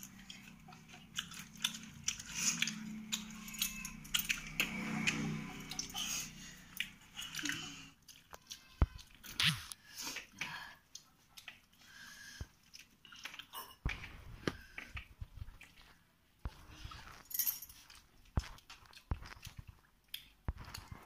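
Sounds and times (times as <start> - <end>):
people chewing and mouth smacking: 0.0 - 21.0
sharp clicks and crunches: 12.8 - 21.0.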